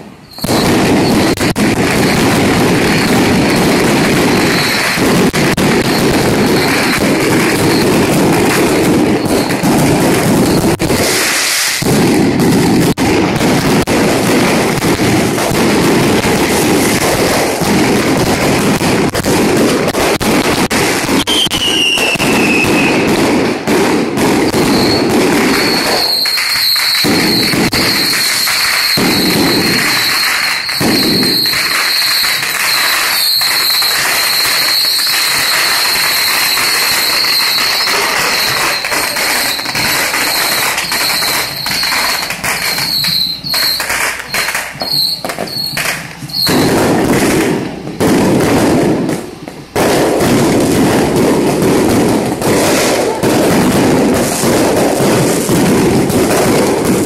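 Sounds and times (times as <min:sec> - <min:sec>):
falling firework whistle: 0:00.0 - 0:57.0
firecrackers crackling: 0:00.0 - 0:57.0
steady high whistle: 0:21.2 - 0:23.1, 0:24.6 - 0:46.8.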